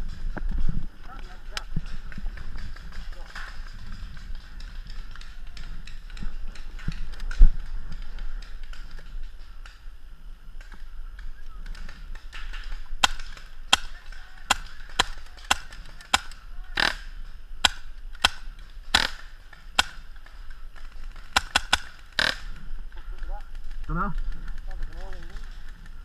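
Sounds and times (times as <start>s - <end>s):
paintball markers firing: 10.6s - 26.0s.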